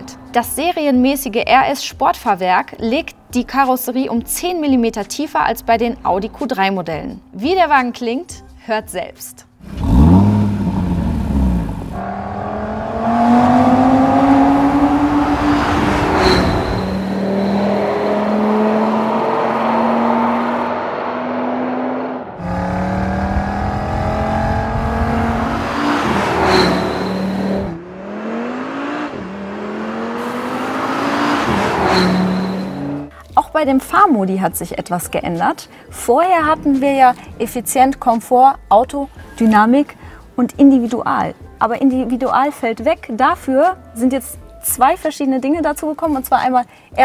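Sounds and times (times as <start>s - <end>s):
car engine revving hard: 9.6s - 33.1s.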